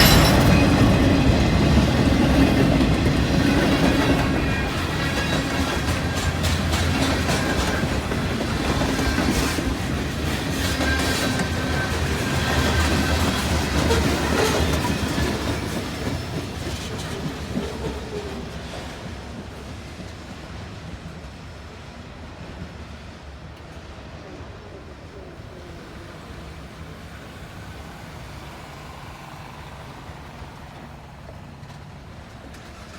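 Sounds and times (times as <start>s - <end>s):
train wheels clacking over rail joints: 0.0s - 21.6s, 25.8s - 32.9s.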